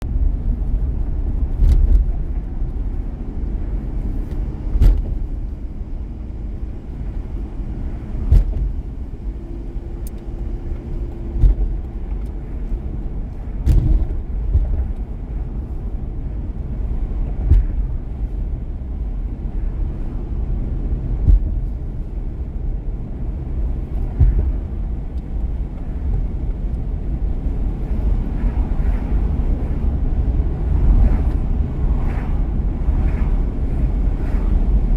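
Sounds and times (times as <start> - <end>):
car road rumble: 0.0 - 34.9
knocks from road bumps: 4.7 - 5.4, 8.2 - 8.9, 11.3 - 11.9, 13.6 - 15.0, 17.4 - 18.0, 21.2 - 21.7, 24.0 - 24.7.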